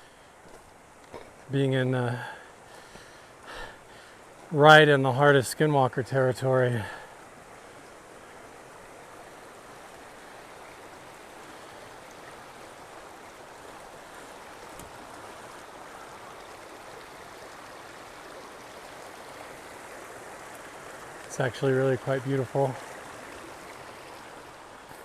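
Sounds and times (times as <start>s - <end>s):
stream water running: 0.0s - 25.0s.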